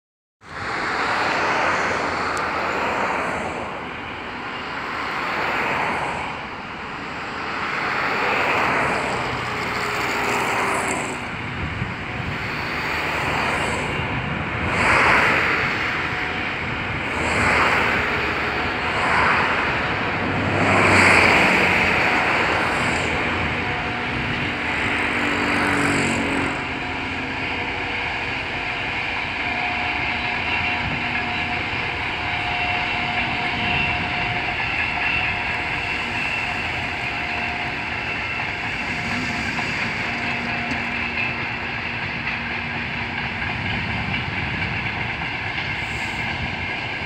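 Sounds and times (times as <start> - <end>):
distant freight train rumble: 0.4 - 47.0.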